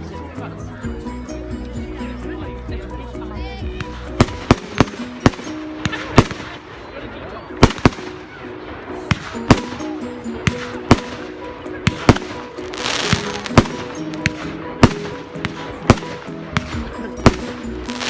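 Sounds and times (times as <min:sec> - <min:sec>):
music: 0:00.0 - 0:18.0
fireworks bangs: 0:04.2 - 0:06.7, 0:07.6 - 0:08.4, 0:09.1 - 0:18.0.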